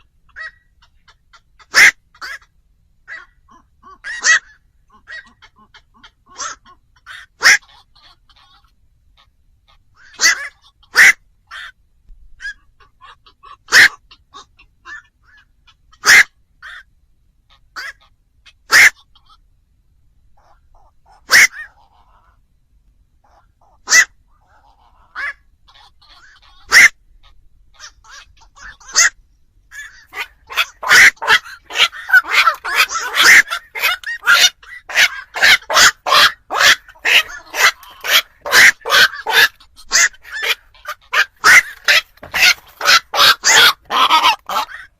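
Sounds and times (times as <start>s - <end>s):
heron harsh croaks: 3.1s - 8.7s, 23.2s - 44.9s.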